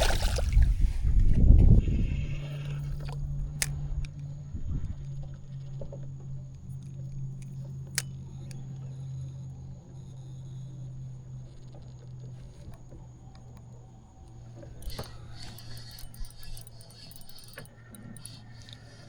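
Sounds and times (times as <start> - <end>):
water sloshing: 0.0 - 1.0
small electric motor humming: 0.7 - 19.0
sharp clicks: 12.4 - 19.0.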